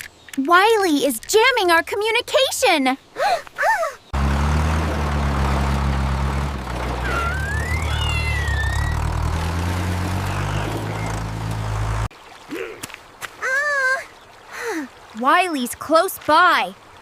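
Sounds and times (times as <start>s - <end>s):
engine hum: 4.1s - 12.1s
whistle-like tone: 7.0s - 9.1s.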